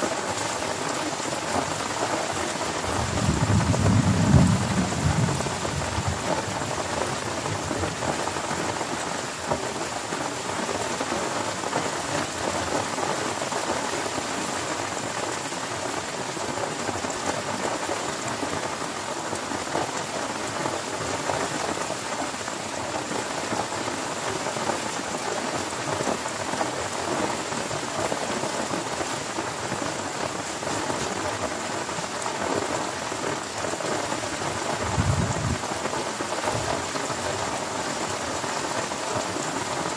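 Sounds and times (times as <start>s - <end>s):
heavy rain falling: 0.0s - 39.9s
low thunder rumble: 2.8s - 7.0s, 34.7s - 35.7s.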